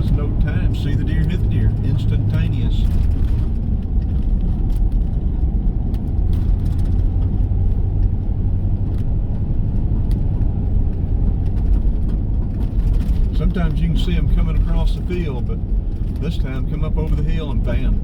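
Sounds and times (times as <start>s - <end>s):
car cabin road noise: 0.0s - 18.0s.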